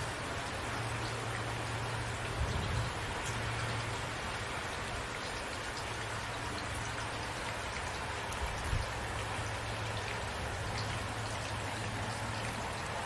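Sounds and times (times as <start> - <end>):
raindrops pattering on surfaces: 0.0 - 13.0
steady rain falling: 0.0 - 13.0.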